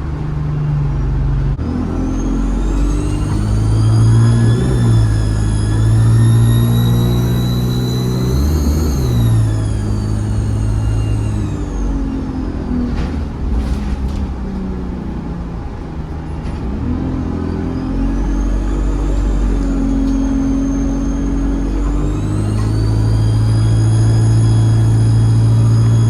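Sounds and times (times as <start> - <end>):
bus diesel engine pulling: 0.0 - 26.0
turbocharger whistle: 1.6 - 12.7, 17.3 - 26.0.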